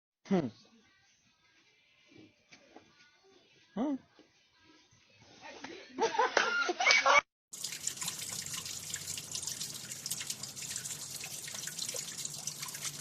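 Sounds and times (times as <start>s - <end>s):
water trickling and dripping: 7.5s - 13.0s.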